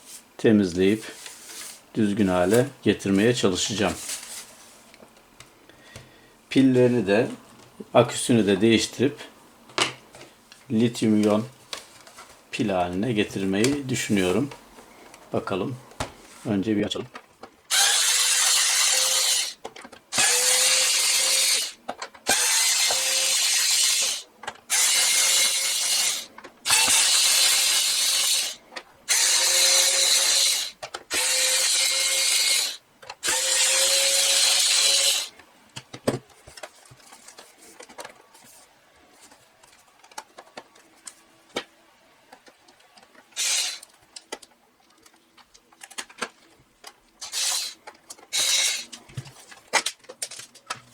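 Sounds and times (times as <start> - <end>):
electric screwdriver running: 17.7 - 35.3, 43.4 - 43.8, 47.2 - 48.9.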